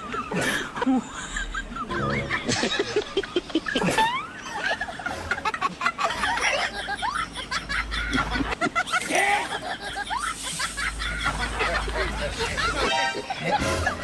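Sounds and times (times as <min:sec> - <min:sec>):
voices snickering and laughing: 0:00.0 - 0:14.0.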